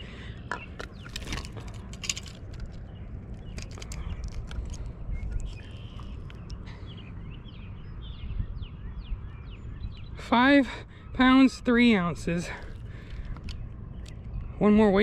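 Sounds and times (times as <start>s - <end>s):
handling clicks and rattles: 0.7s - 6.6s.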